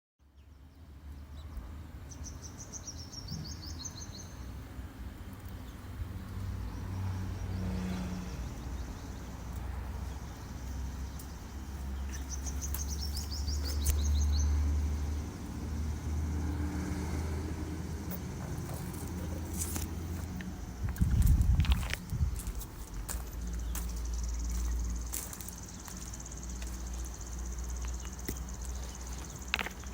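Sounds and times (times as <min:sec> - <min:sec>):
songbird singing: 0:00.2 - 0:29.9
steady low rumble: 0:17.9 - 0:29.9.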